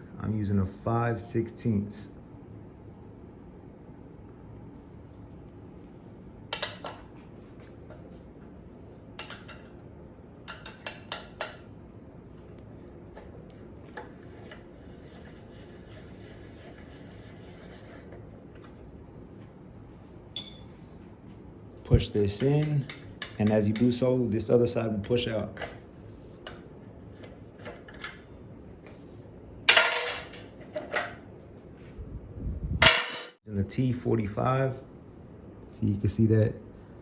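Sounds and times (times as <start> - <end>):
hand tools clinking on metal: 20.4 - 20.8.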